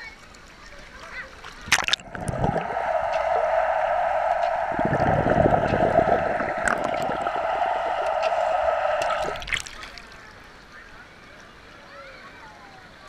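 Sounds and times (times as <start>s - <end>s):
water rushing and gurgling: 1.5s - 10.4s
deep water churning: 1.6s - 10.3s.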